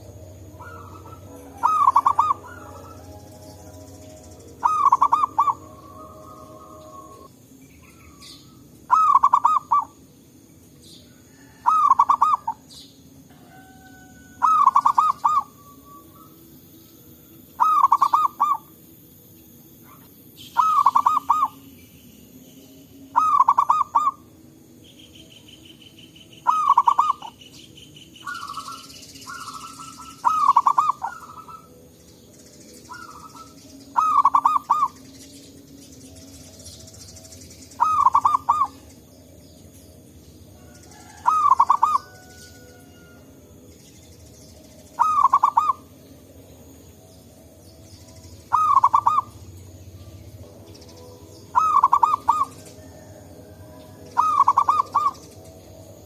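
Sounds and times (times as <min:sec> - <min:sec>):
dove cooing: 0:00.0 - 0:10.0, 0:11.1 - 0:16.4, 0:17.6 - 0:18.8, 0:19.8 - 0:21.6, 0:23.1 - 0:24.3, 0:26.4 - 0:27.4, 0:28.2 - 0:31.9, 0:32.9 - 0:35.0, 0:37.7 - 0:39.1, 0:40.6 - 0:43.3, 0:44.9 - 0:46.0, 0:48.5 - 0:50.1, 0:51.5 - 0:55.4.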